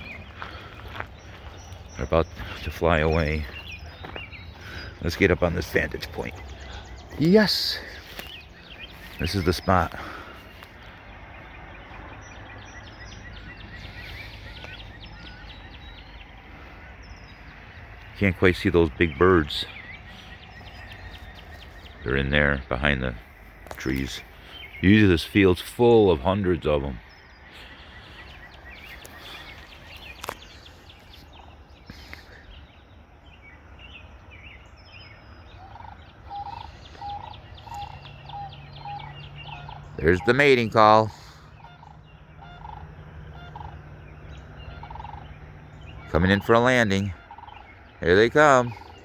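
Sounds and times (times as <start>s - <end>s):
distant birds chirping: 0.0s - 49.0s
low outdoor rumble: 0.0s - 49.0s.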